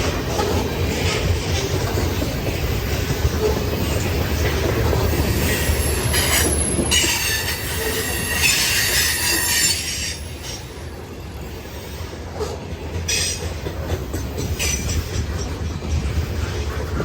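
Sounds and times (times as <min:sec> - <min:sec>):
train wheels squealing: 0:05.0 - 0:12.2, 0:13.1 - 0:13.6.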